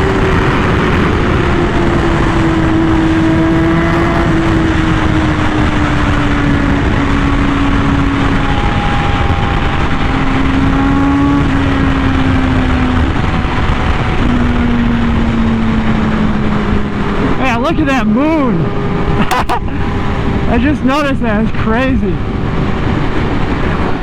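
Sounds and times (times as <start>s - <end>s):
motorcycle engine at high revs: 0.0s - 24.0s
wind noise rushing: 0.0s - 24.0s.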